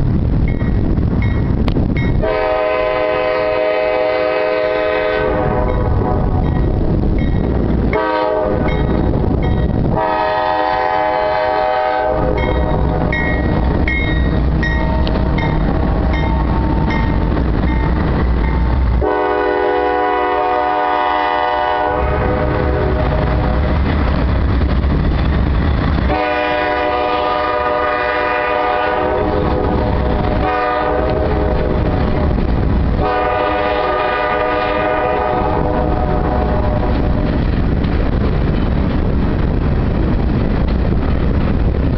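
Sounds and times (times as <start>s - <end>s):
diesel locomotives rumbling: 0.0s - 41.9s
locomotive air horn blasts: 2.2s - 6.5s, 7.9s - 8.7s, 9.9s - 13.2s, 19.0s - 23.7s, 26.1s - 32.3s, 33.0s - 37.3s.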